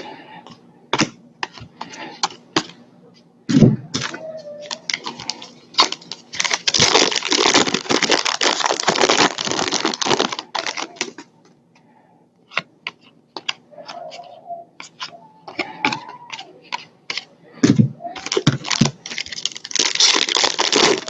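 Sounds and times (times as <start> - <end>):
foil wrappers crinkling and tearing: 4.0 - 11.2, 18.2 - 21.0.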